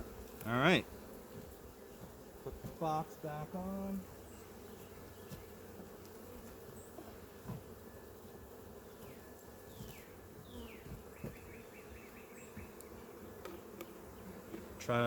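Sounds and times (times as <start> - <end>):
bees buzzing: 0.0 - 15.0
soft knocks on hive box: 6.4 - 7.7, 9.0 - 11.5.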